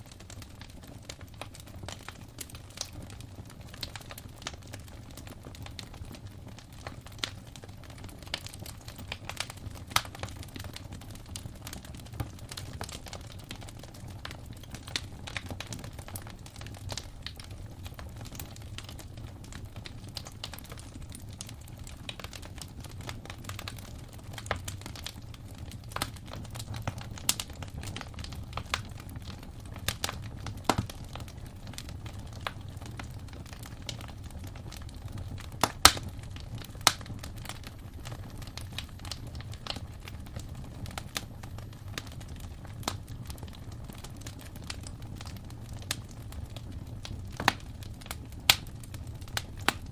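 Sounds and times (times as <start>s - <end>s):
low rumble of flames: 0.0s - 49.9s
wood fire crackling: 0.0s - 49.9s
sharp pops of fire: 24.4s - 49.9s.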